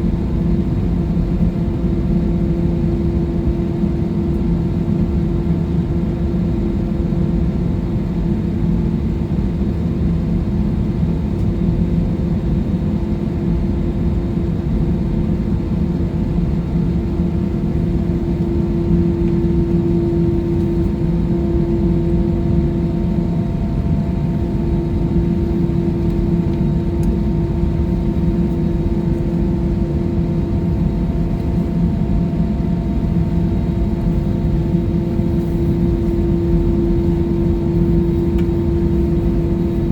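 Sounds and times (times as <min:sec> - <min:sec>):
airliner cabin engine drone: 0:00.0 - 0:39.9
constant tonal hum: 0:16.1 - 0:39.9.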